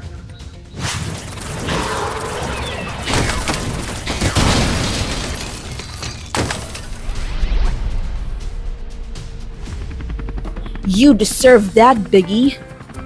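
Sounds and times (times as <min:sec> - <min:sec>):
loud crashes and breaking: 0:00.9 - 0:08.0.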